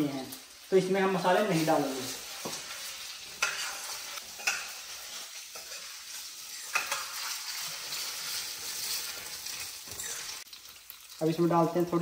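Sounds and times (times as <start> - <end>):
paste sizzling in hot oil: 0.0 - 12.0
metal spoon clinking against pan: 3.4 - 5.9, 6.6 - 7.4.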